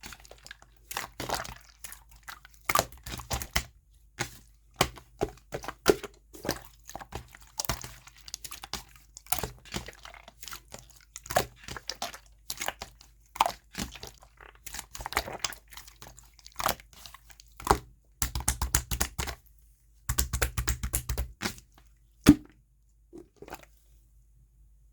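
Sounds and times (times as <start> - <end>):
slime sticky pops and crackles: 17.6 - 19.4, 20.1 - 21.6.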